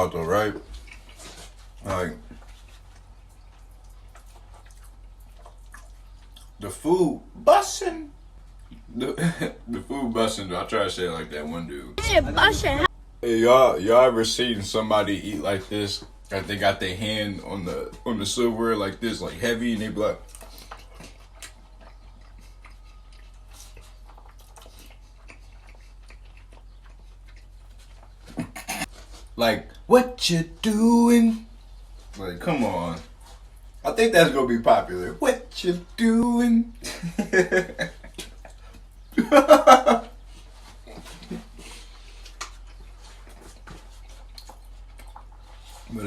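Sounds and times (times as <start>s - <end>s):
quiet eating with small clicks: 0.0s - 7.4s, 8.1s - 10.3s, 15.2s - 29.9s, 32.9s - 34.0s, 36.8s - 46.0s
steady low hum: 0.0s - 22.8s
person chewing food: 0.3s - 6.6s, 20.2s - 29.8s, 32.9s - 33.8s, 37.4s - 45.9s
wet mouth clicks and smacks: 3.0s - 6.6s, 42.2s - 42.9s, 43.6s - 45.5s
man laughing: 9.0s - 9.7s, 36.8s - 38.5s, 39.1s - 40.2s.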